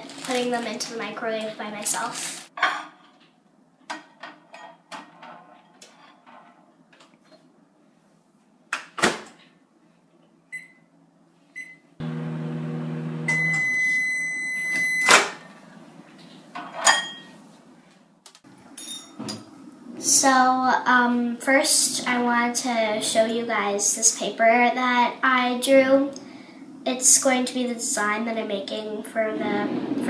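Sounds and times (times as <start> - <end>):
microwave oven humming: 10.5 - 16.2
long high beep: 13.3 - 15.1.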